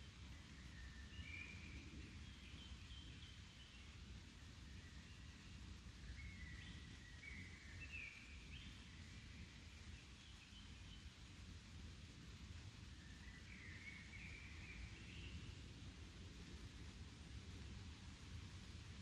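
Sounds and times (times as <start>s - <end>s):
faint birdsong whistles: 0.0s - 11.3s, 12.8s - 15.7s.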